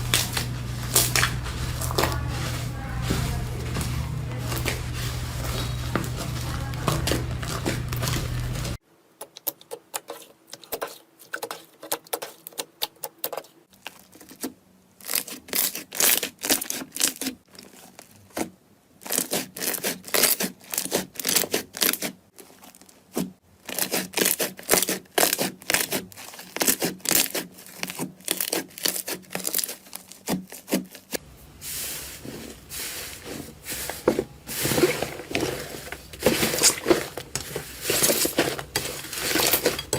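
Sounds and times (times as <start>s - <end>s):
slime crackling and popping: 0.0s - 8.8s
steady low hum: 0.0s - 8.8s.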